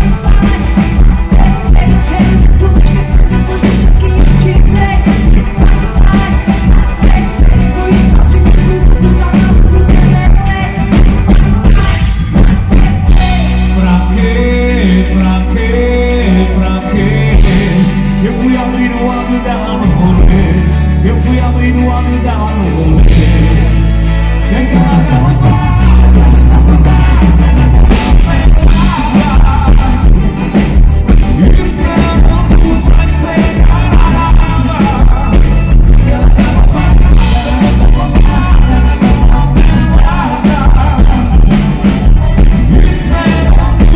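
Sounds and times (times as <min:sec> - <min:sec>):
band playing with singer: 0:00.0 - 0:43.9.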